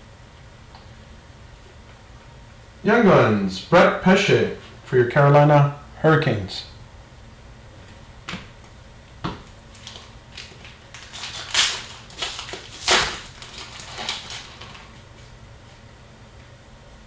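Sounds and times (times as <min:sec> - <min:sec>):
card packs crinkling and rustling: 0:09.7 - 0:15.4.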